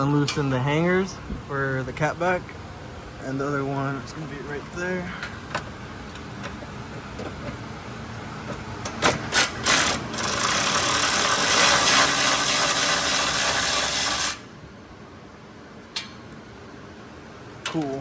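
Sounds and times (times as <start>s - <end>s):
power tool running: 9.1s - 14.5s.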